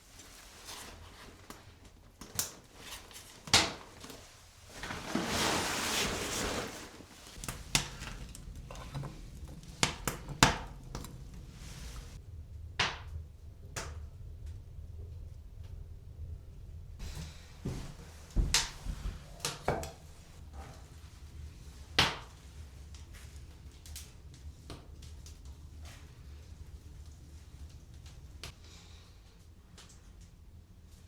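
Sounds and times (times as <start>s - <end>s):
rustling: 2.7s - 12.2s.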